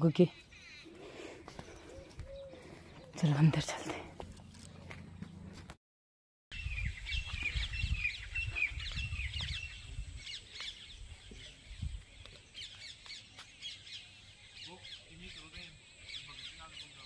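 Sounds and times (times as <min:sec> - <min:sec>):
birds chirping: 0:00.0 - 0:05.6, 0:06.5 - 0:17.0
wind rumble on microphone: 0:06.5 - 0:12.4.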